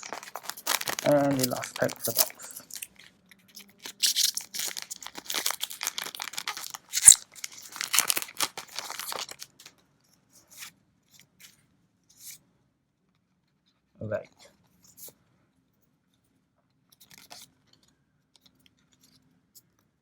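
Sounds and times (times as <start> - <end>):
wrapper crinkling and tearing: 0.0 - 9.7.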